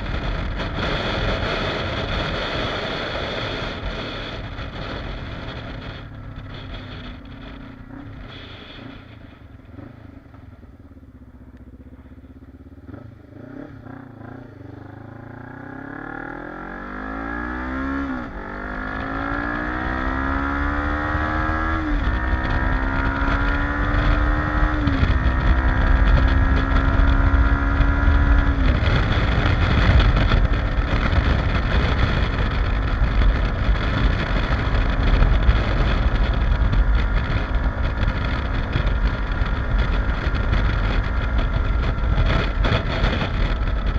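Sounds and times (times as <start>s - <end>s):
wind rush on microphone: 0.0s - 9.8s, 16.3s - 43.9s
motorcycle engine accelerating: 0.0s - 43.9s.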